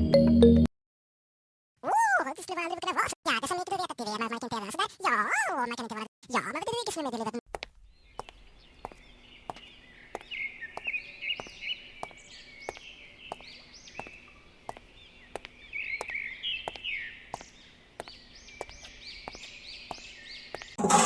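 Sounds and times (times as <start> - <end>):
birds chirping: 7.6 - 20.8.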